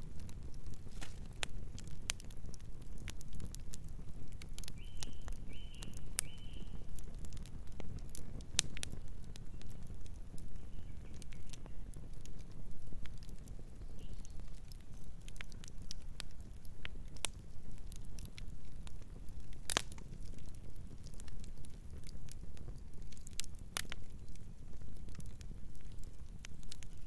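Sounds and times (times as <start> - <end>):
wood fire crackling: 0.0 - 27.0
bird chirping: 4.8 - 6.8.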